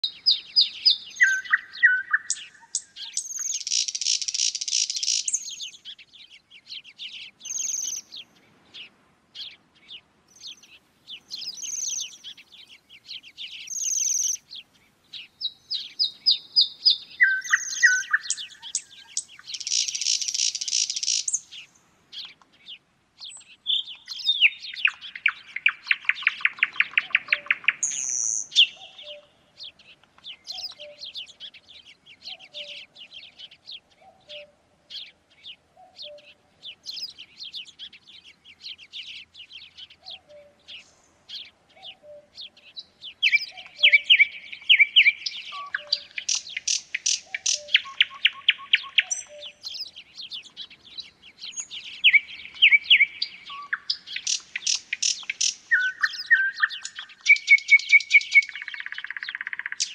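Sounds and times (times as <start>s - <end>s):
low slow bird trill: 0.0s - 9.6s, 10.3s - 22.4s, 23.2s - 59.9s
songbirds singing: 0.0s - 59.9s
high whistled bird notes: 0.9s - 5.5s, 15.7s - 21.4s, 51.6s - 59.8s.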